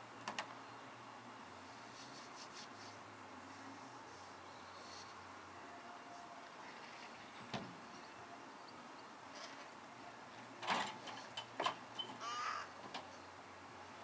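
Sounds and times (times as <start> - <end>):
bird harsh calls: 12.2 - 12.8.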